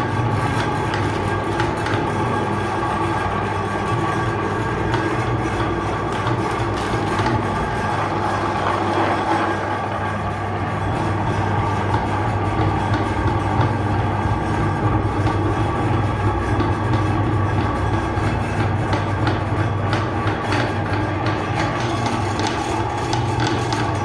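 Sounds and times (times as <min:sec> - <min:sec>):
electric meat grinder humming: 0:00.0 - 0:24.0.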